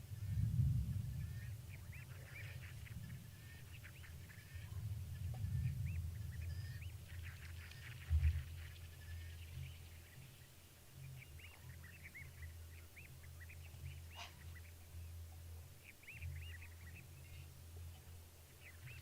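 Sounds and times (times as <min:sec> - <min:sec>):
steady low hum: 0:00.0 - 0:19.0
high chirping animal calls: 0:01.0 - 0:15.0.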